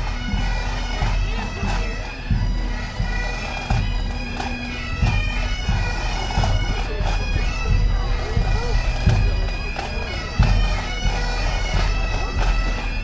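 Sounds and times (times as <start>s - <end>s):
bagpipes playing a tune: 0.0s - 13.0s.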